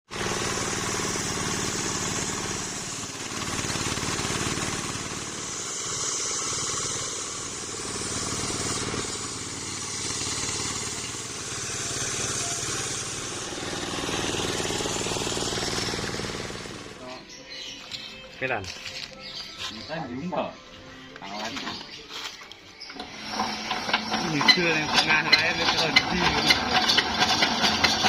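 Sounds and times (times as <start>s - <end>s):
engine driving circular saw: 0.1s - 17.3s, 22.8s - 28.0s
high hiss: 5.2s - 16.6s.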